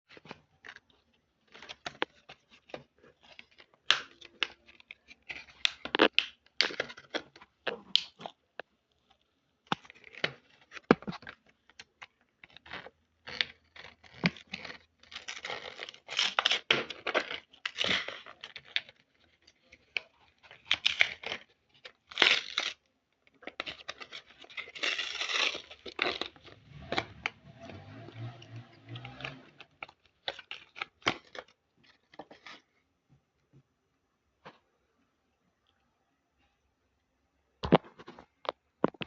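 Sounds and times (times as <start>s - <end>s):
packaging tearing and crinkling: 12.4s - 19.2s, 19.8s - 22.8s, 23.4s - 32.6s.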